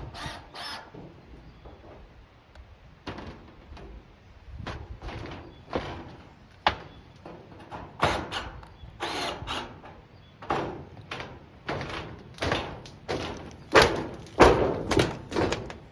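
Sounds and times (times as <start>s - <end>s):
tin roofing panels thudding and rattling: 3.0s - 8.6s, 9.7s - 15.9s.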